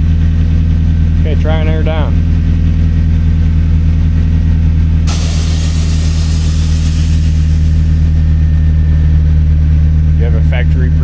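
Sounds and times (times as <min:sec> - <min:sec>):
car engine idling: 0:00.0 - 0:11.0
hiss: 0:05.1 - 0:08.2.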